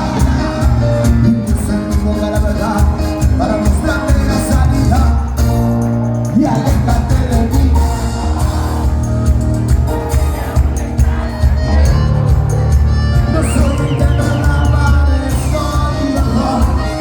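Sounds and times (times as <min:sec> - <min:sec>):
man singing: 0:00.0 - 0:05.6, 0:06.2 - 0:09.4, 0:13.1 - 0:17.0
live dance band with heavy beat: 0:00.0 - 0:17.0.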